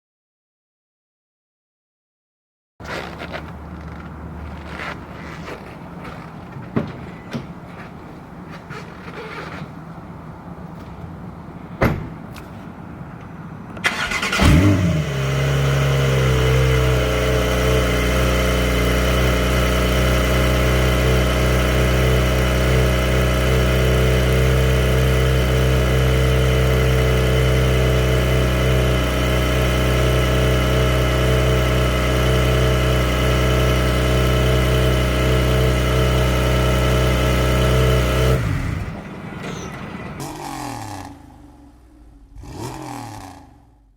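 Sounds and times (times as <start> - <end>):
car engine revving and idling: 2.8 - 6.5, 14.0 - 39.4, 40.1 - 43.9
starter cranking: 13.8 - 15.0.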